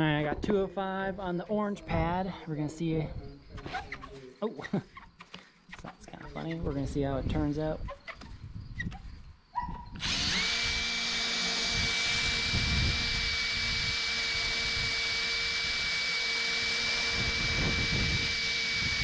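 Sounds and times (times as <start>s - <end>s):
electric buffer whining: 10.0s - 19.0s.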